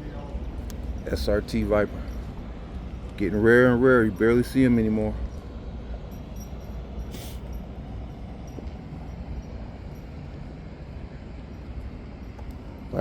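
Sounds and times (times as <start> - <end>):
low outdoor rumble: 0.0 - 13.0
short hiss: 7.1 - 7.5.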